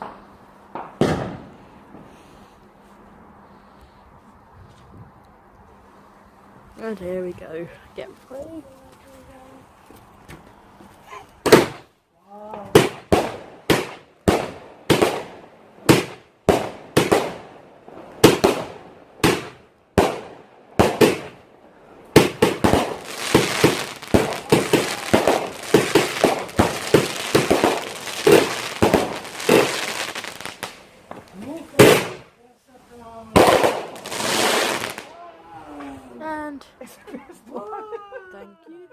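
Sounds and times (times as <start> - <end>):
firework bangs: 0.0 - 2.2, 11.4 - 11.9, 12.6 - 21.5, 22.1 - 32.4, 33.3 - 35.2
firework crackling: 0.0 - 2.8, 11.3 - 11.9, 12.6 - 35.2.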